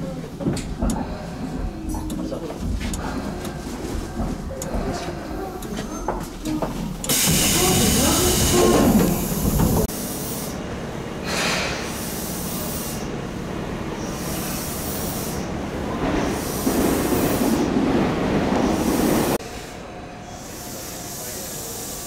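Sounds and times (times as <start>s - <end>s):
compressed air hissing: 7.1s - 10.6s, 11.2s - 13.2s, 14.0s - 15.6s, 18.7s - 22.0s.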